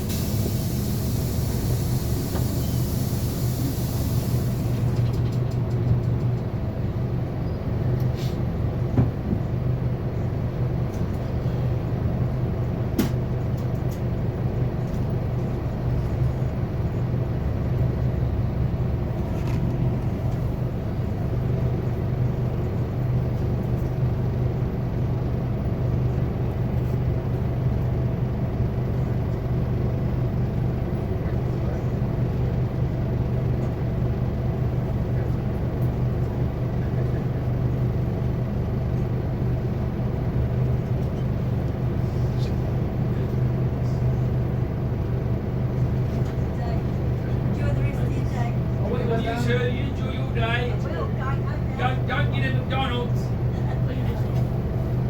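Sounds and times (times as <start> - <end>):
bus engine drone: 0.0 - 55.0
road noise: 0.0 - 55.0.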